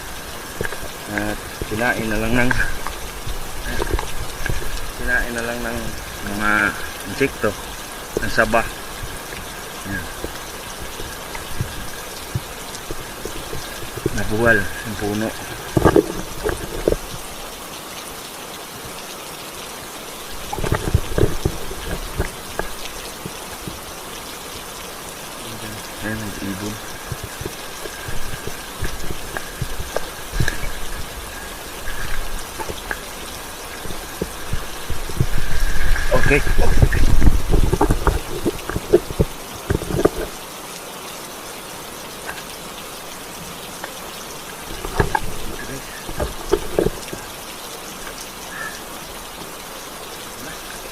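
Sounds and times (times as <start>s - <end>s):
steady rain falling: 0.0s - 50.9s
soft thumps and knocks: 15.4s - 17.3s, 26.9s - 40.4s, 44.7s - 47.3s.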